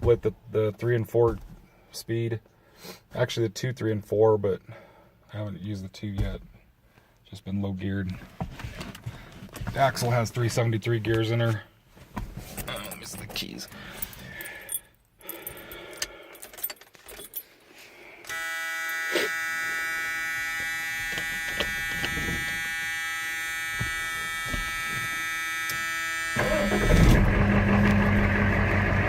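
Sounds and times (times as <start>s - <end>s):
keys jangling: 12.7s - 17.5s
dashboard warning buzzer: 18.3s - 28.7s
diesel engine cranking and running: 18.3s - 29.0s.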